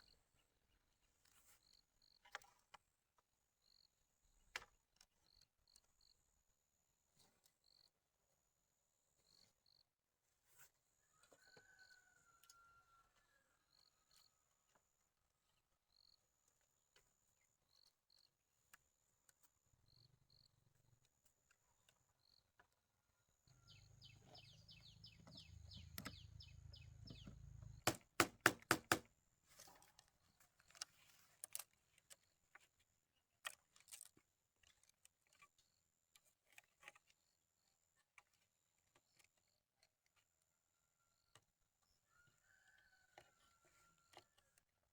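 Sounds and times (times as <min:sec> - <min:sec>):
sharp knocks: 0:27.1 - 0:29.1.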